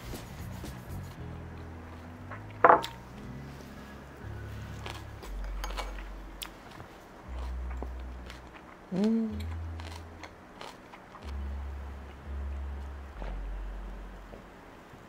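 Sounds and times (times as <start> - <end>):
person chewing noodles: 4.6 - 14.3
wet mouth clicks: 8.8 - 10.0
person humming: 8.9 - 10.2.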